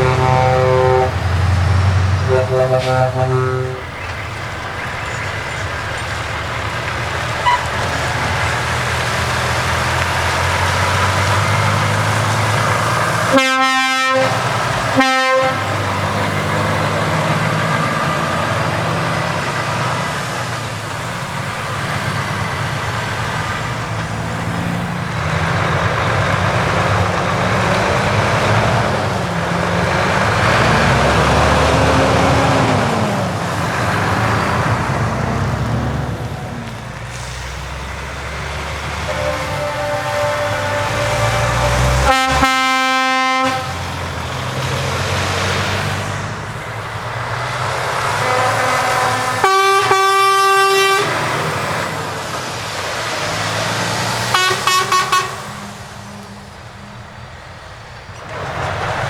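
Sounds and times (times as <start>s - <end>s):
truck air horn blasts: 0.0s - 4.4s, 7.1s - 16.8s, 38.8s - 44.2s, 48.0s - 51.8s, 54.2s - 57.2s
truck diesel engines driving past: 0.0s - 59.0s.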